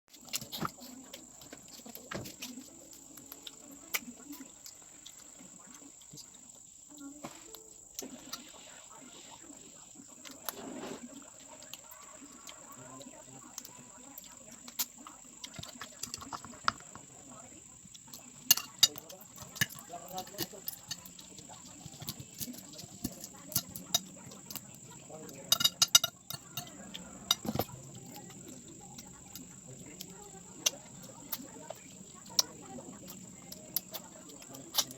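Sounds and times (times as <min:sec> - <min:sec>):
chewing with sharp clicks: 0:00.1 - 0:08.6, 0:11.2 - 0:17.1, 0:17.9 - 0:34.9
cutlery clinking against a dish: 0:18.4 - 0:24.6, 0:25.3 - 0:29.5, 0:33.5 - 0:34.9.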